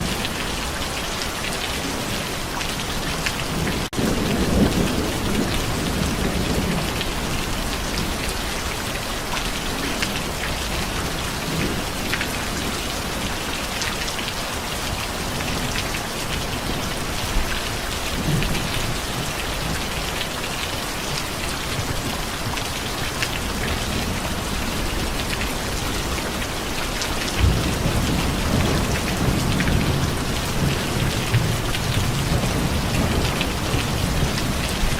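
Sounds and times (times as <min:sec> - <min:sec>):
heavy rain pattering: 0:00.0 - 0:34.9
thunder rolling: 0:27.4 - 0:34.9.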